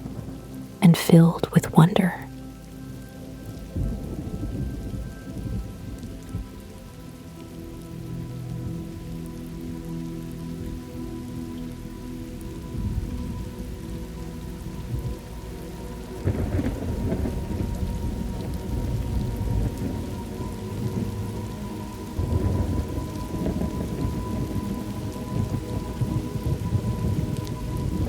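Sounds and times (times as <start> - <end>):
steady rain: 0.0 - 28.0
low rolling thunder: 3.8 - 6.7, 16.2 - 21.2, 22.2 - 28.0.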